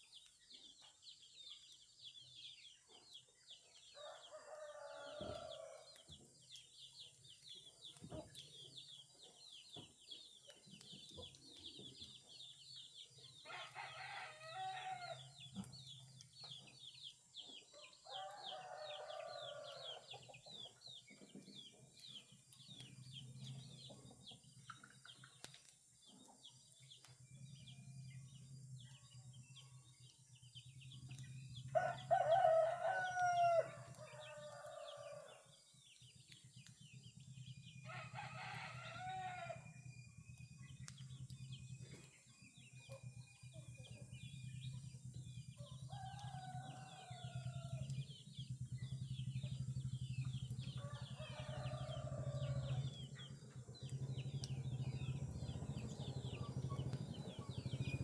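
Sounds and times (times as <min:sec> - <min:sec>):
small birds chirping: 0:00.0 - 0:58.0
roosters crowing: 0:04.0 - 0:05.9, 0:13.4 - 0:15.3, 0:18.1 - 0:20.0, 0:31.7 - 0:35.5, 0:37.8 - 0:39.7, 0:45.7 - 0:48.0, 0:50.7 - 0:53.0.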